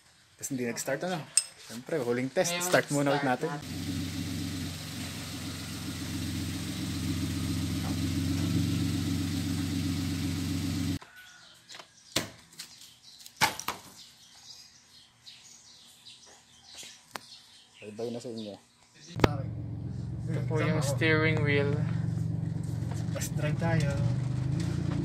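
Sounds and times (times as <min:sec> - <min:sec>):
car engine idling: 0:03.6 - 0:11.0, 0:19.2 - 0:25.0.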